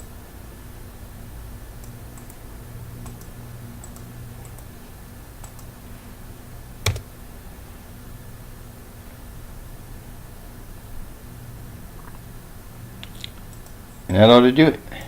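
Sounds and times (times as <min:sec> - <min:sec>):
low steady hum: 0:00.0 - 0:15.0
keyboard key clicks: 0:06.8 - 0:07.1.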